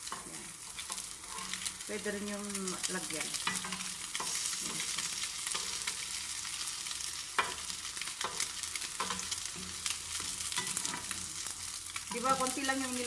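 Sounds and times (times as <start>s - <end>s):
bread sizzling in butter: 0.0s - 13.0s
knife and fork scraping pan: 0.1s - 1.7s.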